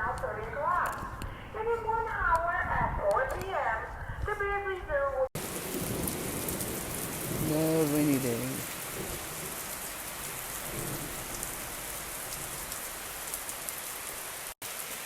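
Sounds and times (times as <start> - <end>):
steady rain falling: 5.4 - 15.0.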